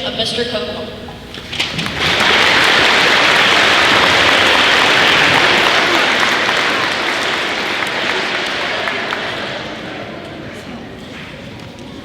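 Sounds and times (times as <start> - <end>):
audience applauding: 1.6 - 10.2.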